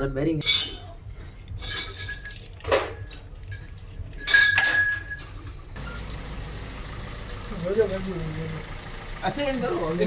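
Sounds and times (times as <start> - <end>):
metal tools clinking: 0.4 - 5.6.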